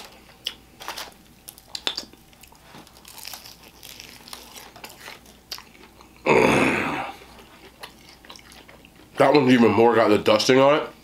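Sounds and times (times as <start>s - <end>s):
chewing crispy chicken: 0.0s - 6.3s, 7.1s - 9.5s
person humming mmm: 6.2s - 7.2s.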